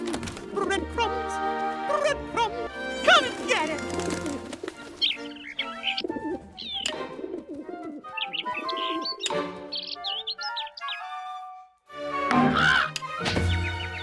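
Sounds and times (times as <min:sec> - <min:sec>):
background music: 0:00.0 - 0:14.0
cartoon birds cooing and chirping: 0:02.9 - 0:11.4, 0:12.4 - 0:14.0.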